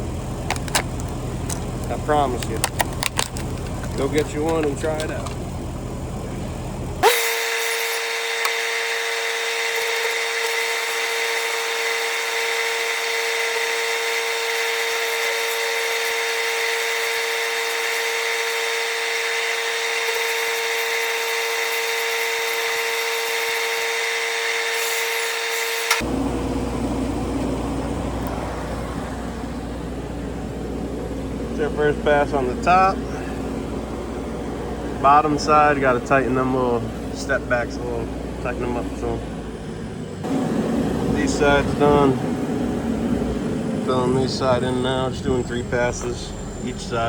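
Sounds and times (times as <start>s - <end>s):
low engine hum: 0.0s - 7.1s, 26.0s - 47.0s
angle grinder whining: 0.0s - 47.0s.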